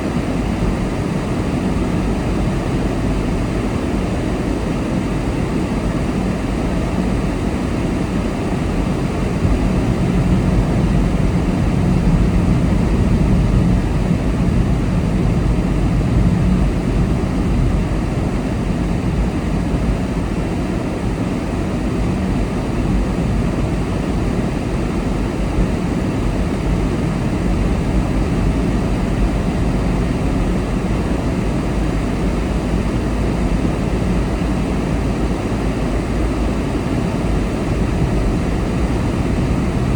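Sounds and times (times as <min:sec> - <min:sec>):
car road noise and engine rumble: 0:37.1 - 0:39.9.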